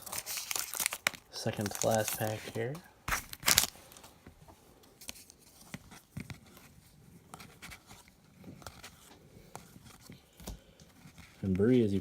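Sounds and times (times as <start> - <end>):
wrapper tearing and crinkling: 0.0 - 2.5, 3.1 - 3.8
cards being handled: 0.0 - 4.1, 4.8 - 12.0.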